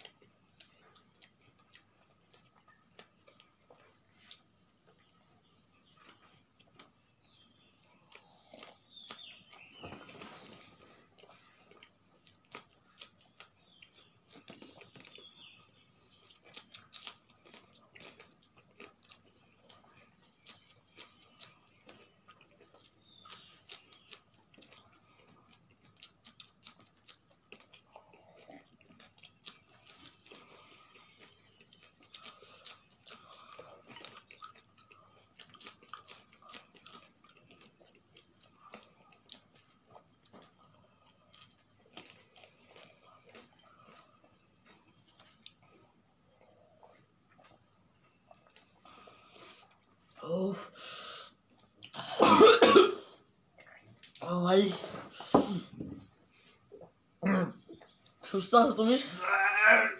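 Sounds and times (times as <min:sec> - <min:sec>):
crunchy chewing: 0:00.0 - 0:50.2.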